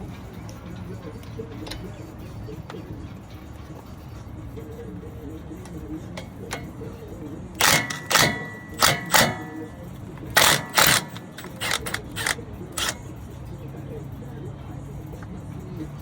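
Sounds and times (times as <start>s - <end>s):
metallic clanks of hand tools: 0.0s - 2.8s, 5.6s - 7.0s, 7.6s - 13.1s
small clicks: 10.4s - 13.0s.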